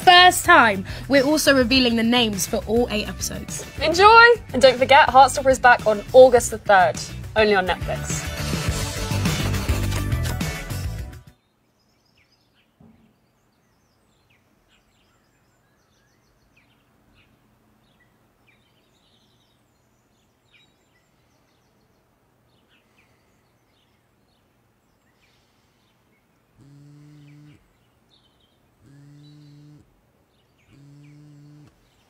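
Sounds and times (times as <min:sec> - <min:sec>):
faint bird chirps: 0:11.4 - 0:32.0
low steady buzz: 0:26.0 - 0:32.0.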